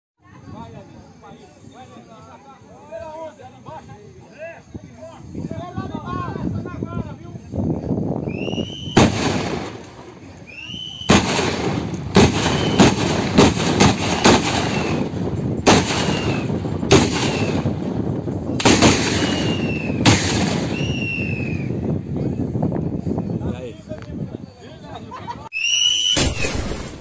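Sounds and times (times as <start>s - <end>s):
loud gunshots: 9.0s - 9.8s, 11.1s - 17.7s, 18.6s - 20.8s, 26.1s - 27.0s.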